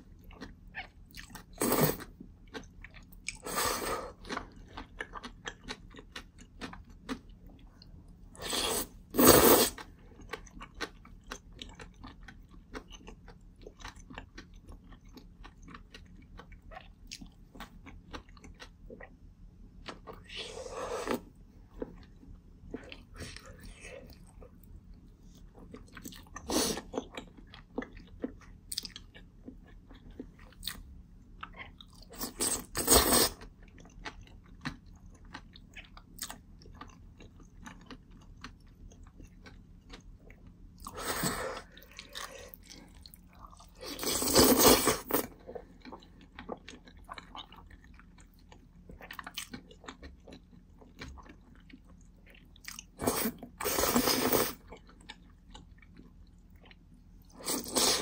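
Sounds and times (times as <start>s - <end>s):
chewing noodles: 0.0s - 19.2s, 19.8s - 30.8s, 31.4s - 58.0s
slurping noodles: 8.4s - 9.9s, 32.2s - 33.4s, 43.8s - 45.3s, 53.0s - 54.6s, 57.4s - 58.0s.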